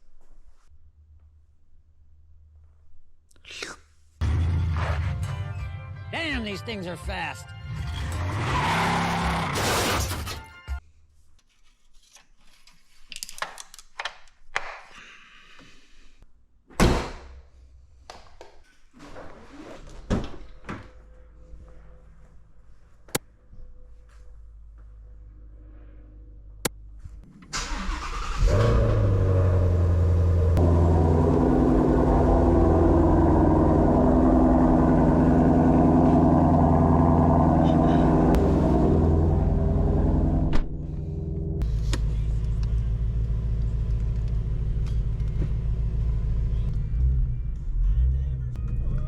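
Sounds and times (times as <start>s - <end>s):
car engine starting and idling: 27.3s - 49.0s.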